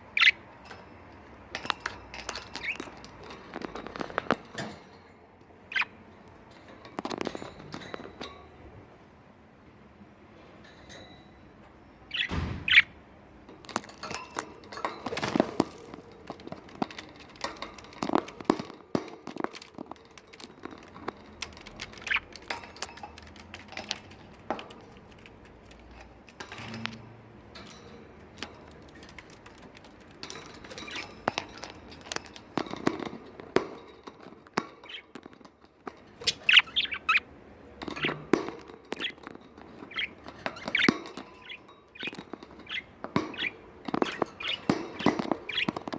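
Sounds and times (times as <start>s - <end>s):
budgerigars chirping: 0.1s - 0.4s, 5.7s - 6.0s, 12.1s - 13.0s, 21.9s - 22.4s, 36.2s - 37.2s, 39.0s - 39.2s, 39.8s - 45.9s.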